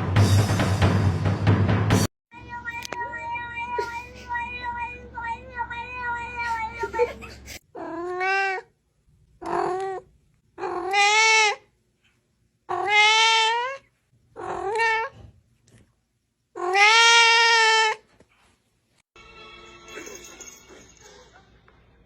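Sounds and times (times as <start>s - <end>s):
cat meowing: 2.3s - 7.1s, 7.8s - 8.7s, 9.4s - 11.7s, 12.7s - 15.2s, 16.6s - 18.0s.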